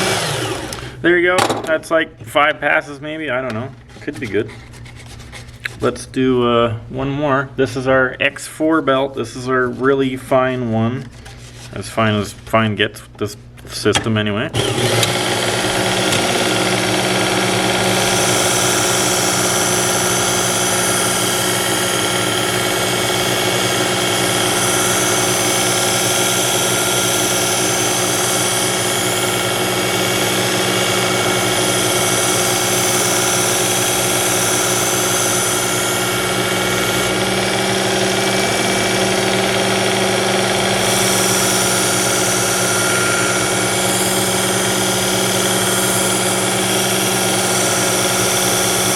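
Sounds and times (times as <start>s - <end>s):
electric sharpener motor hum: 0.0s - 1.0s, 14.6s - 48.9s.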